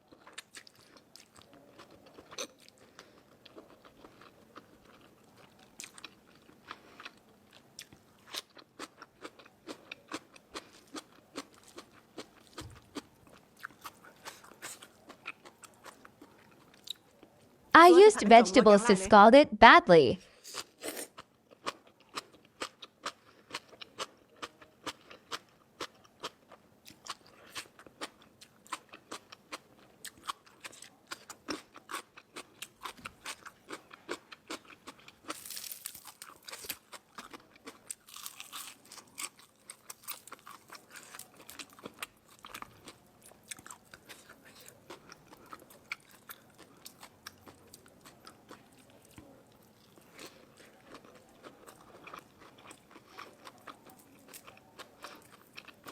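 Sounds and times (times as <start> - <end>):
crunching and chewing crisp food: 0.0 - 17.4, 20.3 - 55.9.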